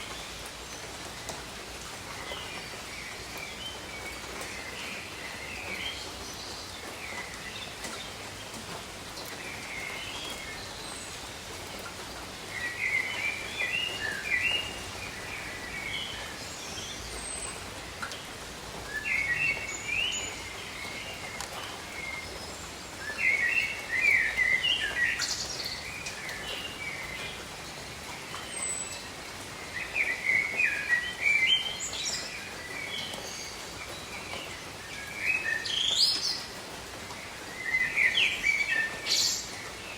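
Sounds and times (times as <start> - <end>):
steady rain falling: 0.0 - 39.9
songbird chirping: 9.3 - 36.6.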